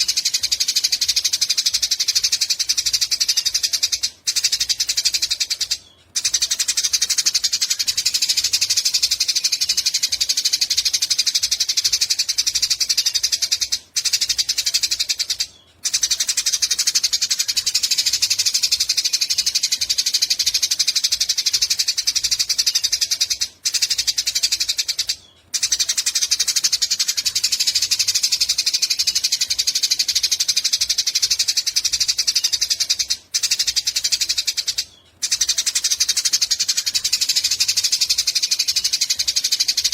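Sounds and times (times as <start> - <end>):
sparrow chattering call: 0.0 - 39.9.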